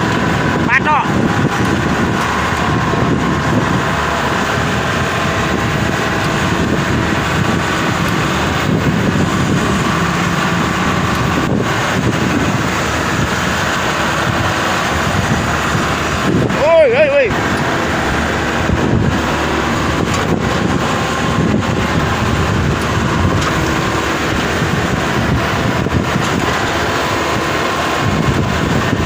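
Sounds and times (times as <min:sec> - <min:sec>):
harvester engine running: 0:00.0 - 0:29.0
wind buffeting microphone: 0:00.0 - 0:29.0.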